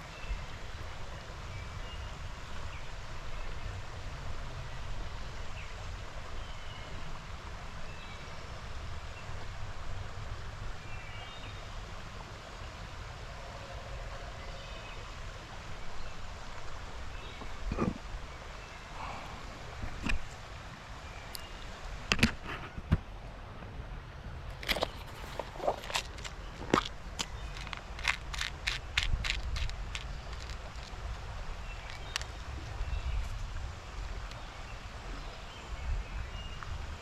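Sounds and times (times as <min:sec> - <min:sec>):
creek water running: 0:00.0 - 0:37.0
wind rumble on microphone: 0:22.0 - 0:37.0.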